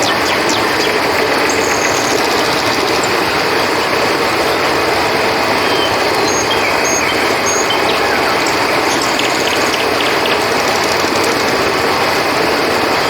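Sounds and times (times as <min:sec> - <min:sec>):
river water flowing: 0:00.0 - 0:13.0
animal high chirps: 0:05.6 - 0:11.8.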